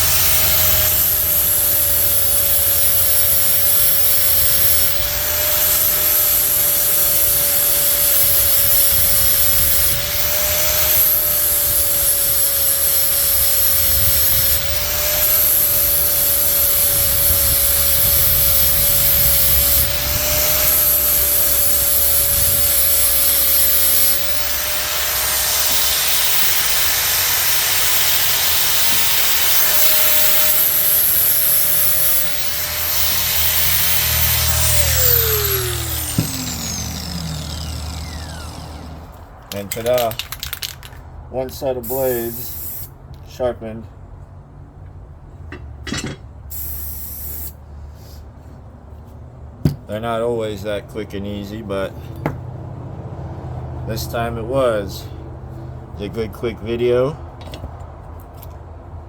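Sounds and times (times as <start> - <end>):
angle grinder motor whine: 0.0 - 40.9
grinder grinding metal blade: 0.0 - 43.4.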